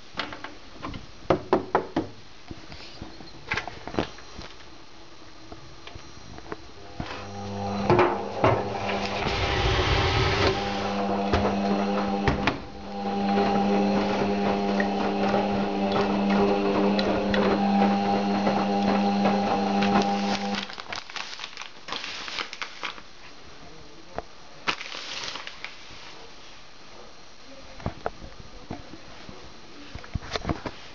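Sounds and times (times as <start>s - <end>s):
washing machine motor hum: 6.8s - 20.8s.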